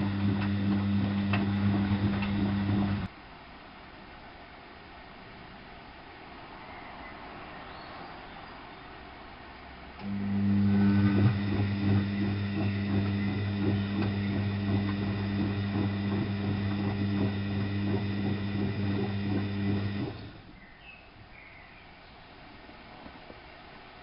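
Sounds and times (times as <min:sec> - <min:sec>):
washing machine drain pump hum: 0:00.0 - 0:03.1, 0:10.0 - 0:20.5.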